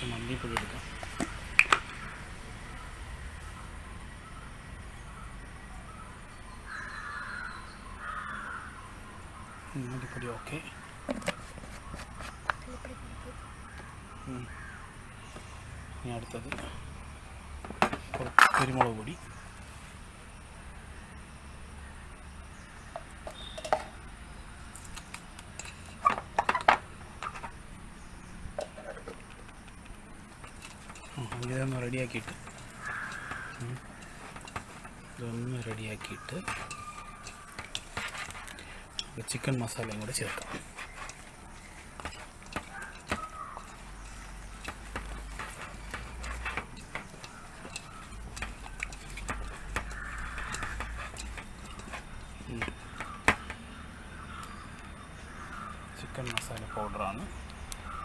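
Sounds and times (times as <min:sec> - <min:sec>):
packet clicks and taps: 0:28.6 - 0:53.7
spoon clinking against bowl: 0:30.5 - 0:53.1.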